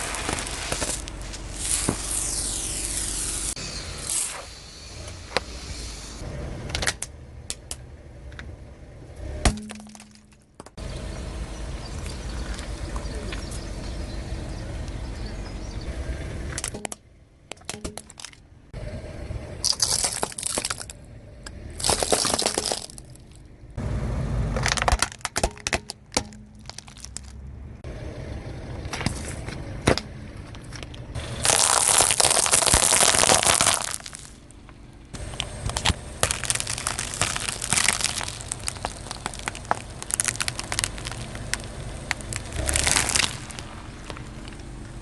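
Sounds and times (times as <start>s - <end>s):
objects crunching under tyre: 0.0s - 6.2s, 9.2s - 11.0s, 19.6s - 23.5s, 24.5s - 27.6s, 28.8s - 45.0s
car rumbling: 0.0s - 45.0s.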